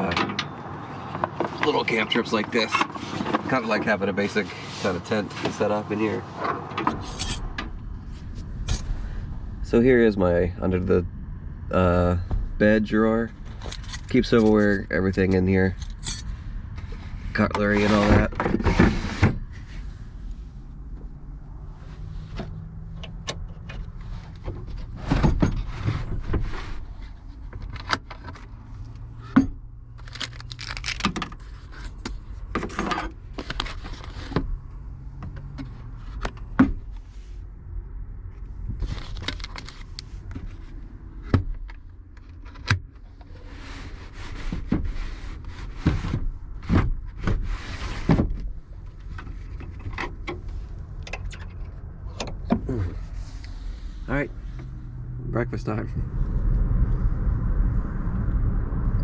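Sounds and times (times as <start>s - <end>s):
low steady hum: 6.9s - 35.2s
cutlery clinking in a drawer: 13.6s - 16.2s.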